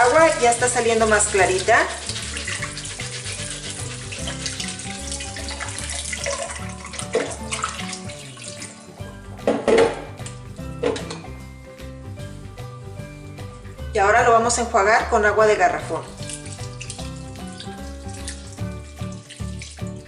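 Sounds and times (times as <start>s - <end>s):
water splashing into steel sink: 0.0s - 8.9s, 15.9s - 20.0s
background music: 0.0s - 20.0s
tap water pouring through rice: 1.2s - 8.8s, 16.1s - 20.0s.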